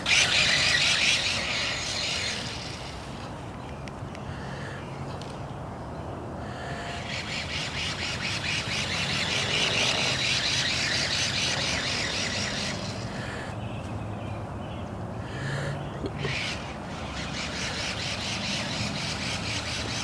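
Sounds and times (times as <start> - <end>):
toy truck motor whirring: 0.0 - 3.3, 7.2 - 13.1, 16.2 - 20.0.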